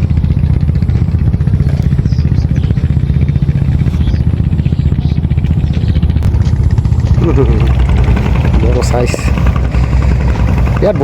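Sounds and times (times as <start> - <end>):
engine chugging: 0.0 - 11.0.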